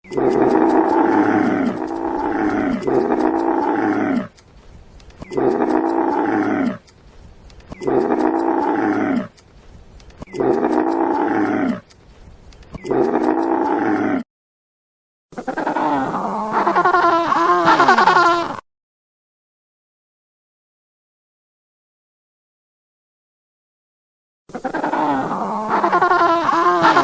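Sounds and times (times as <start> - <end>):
large animal calling: 0.0 - 4.4, 5.2 - 6.9, 7.7 - 9.4, 10.2 - 11.9, 12.8 - 14.2, 15.4 - 18.6, 24.5 - 27.0.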